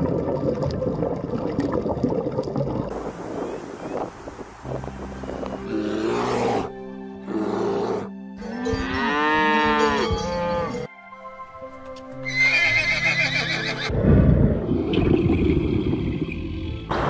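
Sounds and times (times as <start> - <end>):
background music: 4.6 - 17.0
cow mooing: 5.7 - 10.9.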